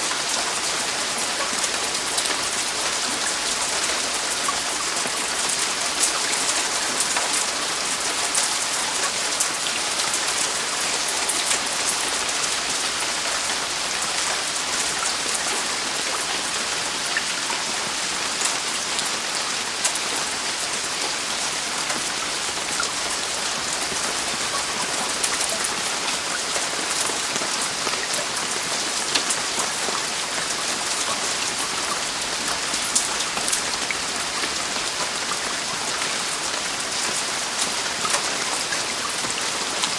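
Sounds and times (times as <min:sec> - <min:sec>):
heavy rain on a roof: 0:00.0 - 0:39.9
raindrops ticking: 0:21.8 - 0:39.9.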